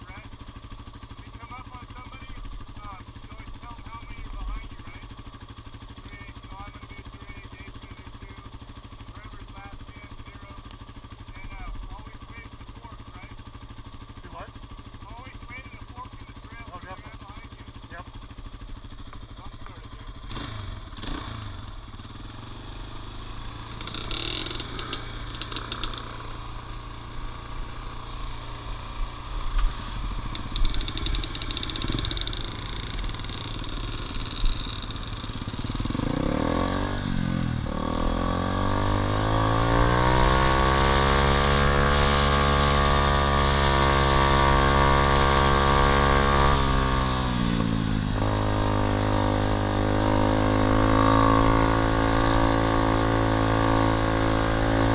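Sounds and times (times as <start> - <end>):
dirt bike engine revving: 11.2 - 54.9
clicks and rattles: 23.8 - 26.1, 30.3 - 32.4.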